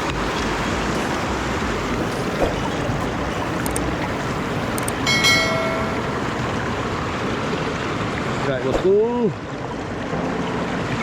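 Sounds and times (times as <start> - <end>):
river rushing over rapids: 0.0 - 8.5
light clicks: 3.6 - 3.9, 4.8 - 5.0.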